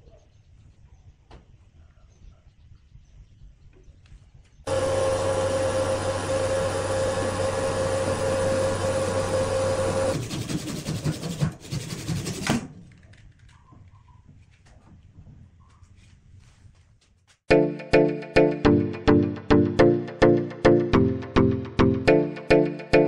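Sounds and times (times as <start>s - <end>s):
power tool motor whining: 4.7s - 10.2s.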